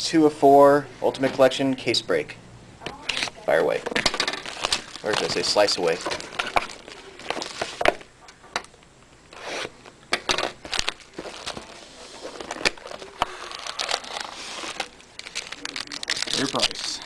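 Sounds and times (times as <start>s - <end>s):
packaging crinkling: 3.1s - 8.1s, 9.2s - 17.0s.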